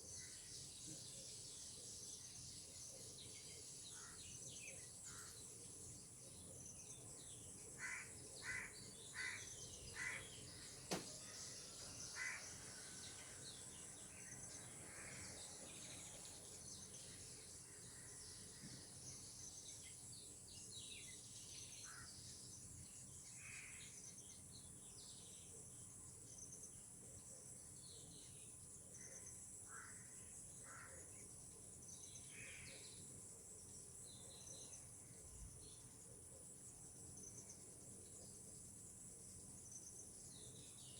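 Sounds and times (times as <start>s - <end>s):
sharp click: 10.9s - 11.1s.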